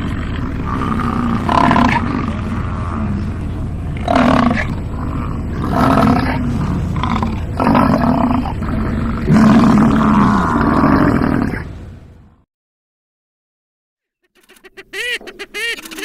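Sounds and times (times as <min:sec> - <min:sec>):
bison bellowing: 0:00.0 - 0:11.9.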